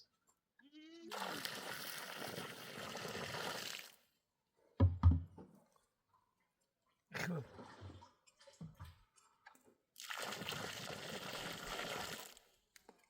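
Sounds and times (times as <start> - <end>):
water pouring and sloshing: 1.1 - 4.0, 5.3 - 13.0
dull knocks: 4.8 - 5.4.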